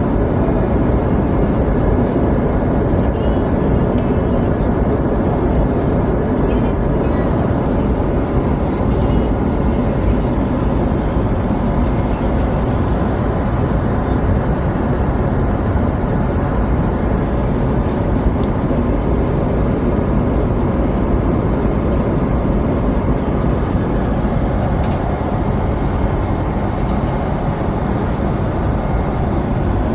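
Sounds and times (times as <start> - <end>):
jet airliner cabin noise: 0.0 - 29.9.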